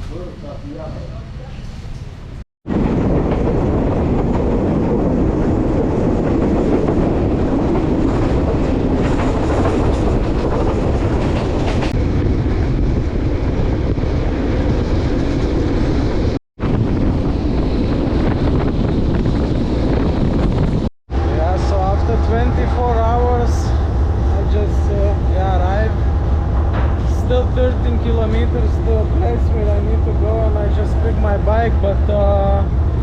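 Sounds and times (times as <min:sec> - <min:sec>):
train carriage rattling: 0:00.0 - 0:12.3, 0:19.8 - 0:33.0
train wheels rumbling on rails: 0:00.0 - 0:33.0.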